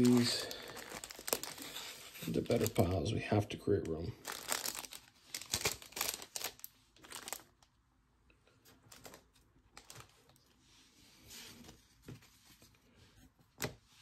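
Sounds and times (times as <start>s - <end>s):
crinkling wrapper rustles: 0.0s - 7.8s, 8.6s - 10.6s.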